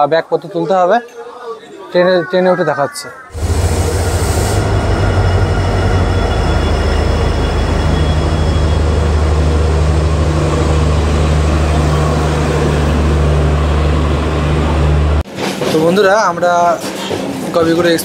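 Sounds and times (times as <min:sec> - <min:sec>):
higher hum: 0:03.3 - 0:15.2
diesel locomotive engine hum: 0:03.3 - 0:15.3
rumble of train wheels: 0:03.4 - 0:18.0.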